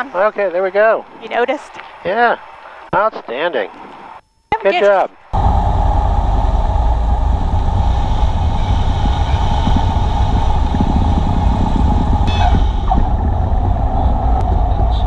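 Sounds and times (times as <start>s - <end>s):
airplane engine drone: 5.3s - 15.0s.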